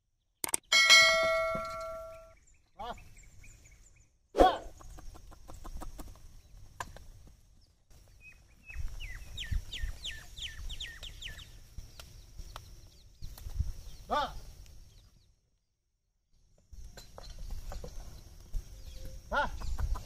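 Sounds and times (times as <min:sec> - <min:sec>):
birds calling: 0:00.4 - 0:15.4, 0:16.9 - 0:20.0.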